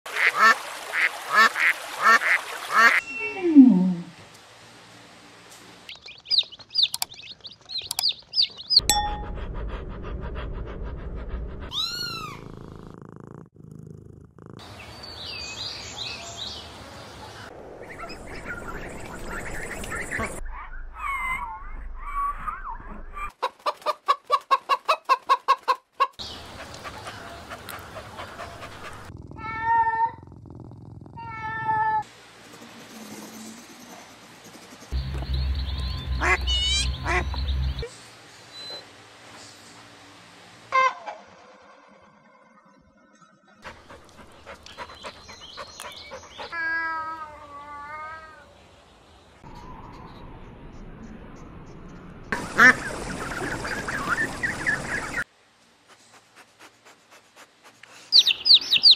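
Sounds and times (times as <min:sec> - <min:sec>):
chicken clucking: 0:23.3 - 0:29.0.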